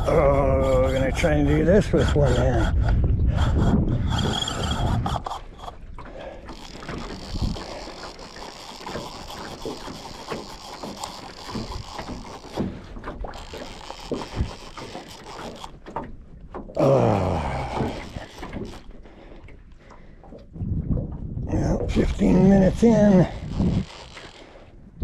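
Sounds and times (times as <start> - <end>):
fishing gear knocking and rattling: 0.0 - 24.7.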